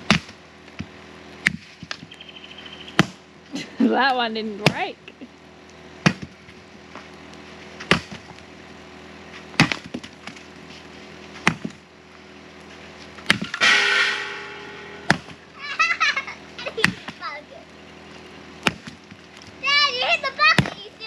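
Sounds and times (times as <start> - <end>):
axe striking wood: 0.0 - 0.4, 1.4 - 2.1, 3.0 - 3.2, 6.0 - 6.4, 7.8 - 8.2, 9.6 - 10.4, 11.4 - 11.8, 13.2 - 15.4, 18.6 - 19.2, 20.6 - 20.8
wood splitting crack: 0.0 - 2.2, 6.0 - 6.6, 7.8 - 8.5, 9.6 - 10.5, 13.2 - 14.4, 18.6 - 19.6.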